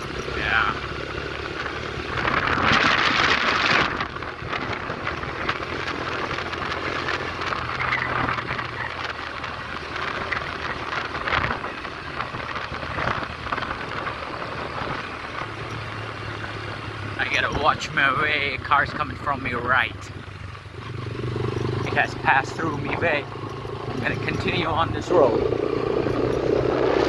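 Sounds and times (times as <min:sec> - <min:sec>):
motorcycle engine running: 0:00.0 - 0:27.0
wind rushing over microphone: 0:01.3 - 0:06.7, 0:22.6 - 0:27.0.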